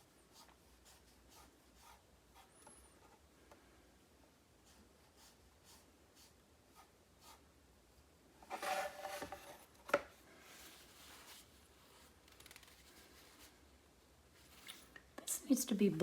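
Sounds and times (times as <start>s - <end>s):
brush scratching on paper: 0.0s - 3.2s, 4.6s - 7.5s.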